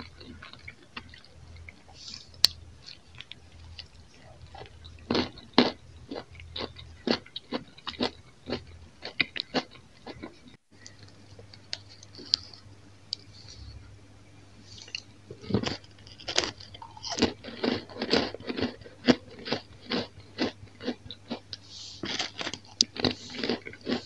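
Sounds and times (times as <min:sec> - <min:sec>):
crisp chewing: 0:00.0 - 0:13.6, 0:14.8 - 0:24.0.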